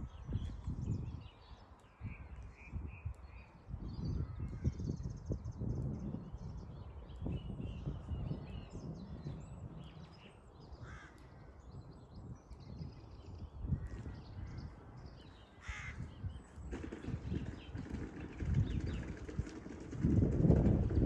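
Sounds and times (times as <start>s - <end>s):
birds chirping: 0.0s - 21.0s
wind on microphone: 0.0s - 21.0s
harsh bird calls: 6.9s - 19.8s.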